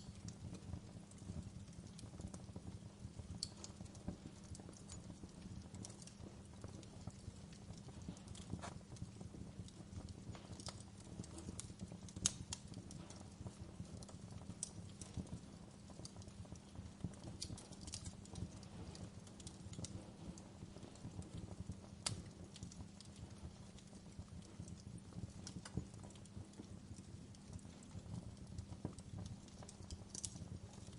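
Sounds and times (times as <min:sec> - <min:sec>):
low rumble of flames: 0:00.0 - 0:30.9
wood fire crackling and popping: 0:00.0 - 0:30.9.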